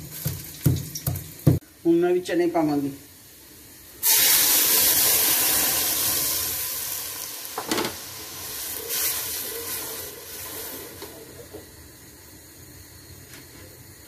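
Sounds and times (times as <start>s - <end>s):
chickpeas sizzling in hot oil: 0.0s - 13.1s.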